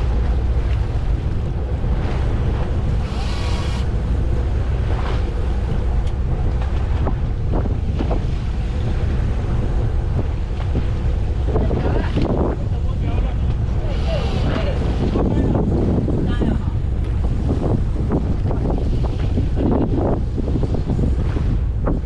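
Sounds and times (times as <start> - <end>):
water washing: 0.0 - 20.2
wind buffeting microphone: 0.0 - 22.0.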